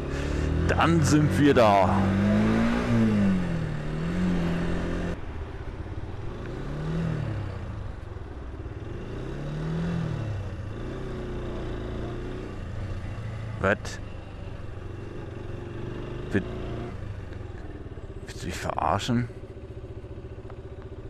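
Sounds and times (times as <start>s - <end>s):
motorcycle engine at low speed: 0.0s - 21.0s.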